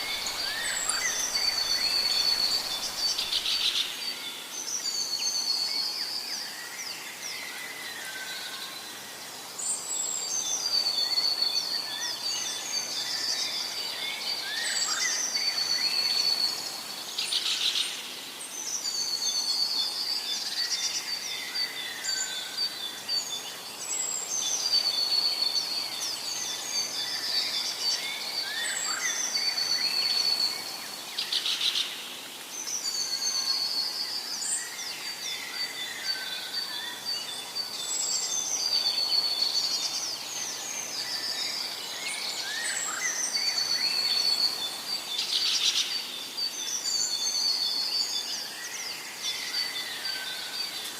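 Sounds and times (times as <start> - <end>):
birds chirping and whistling: 0.0 - 4.2.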